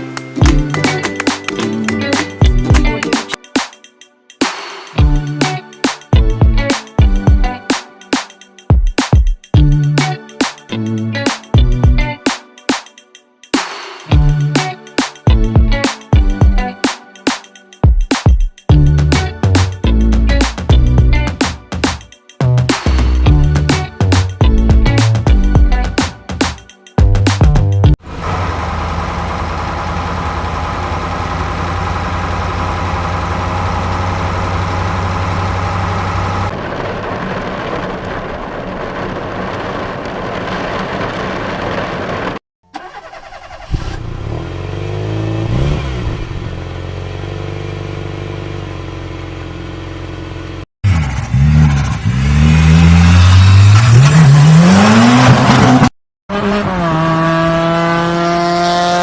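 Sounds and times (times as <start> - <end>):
engine revving: 28.0 - 38.0, 40.9 - 59.0
car engine idling: 28.0 - 50.6.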